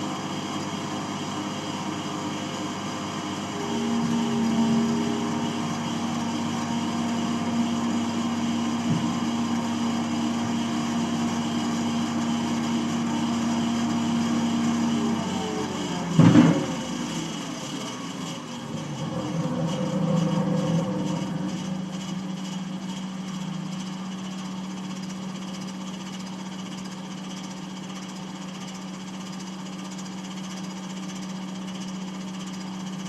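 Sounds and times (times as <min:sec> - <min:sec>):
baler machine hum: 0:00.0 - 0:33.0
loud machine clunk: 0:16.1 - 0:17.1.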